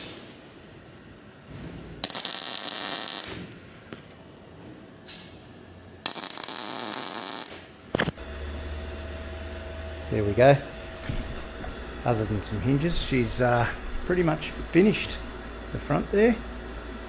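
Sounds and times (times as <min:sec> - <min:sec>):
welding arc crackling: 0:02.0 - 0:05.4, 0:06.0 - 0:08.2.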